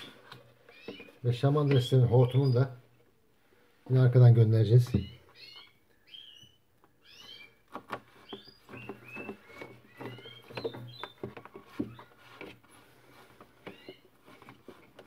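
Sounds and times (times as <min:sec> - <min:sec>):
plastic hose and container handled: 0:00.0 - 0:02.4, 0:06.8 - 0:15.0
small birds chirping: 0:00.0 - 0:15.0.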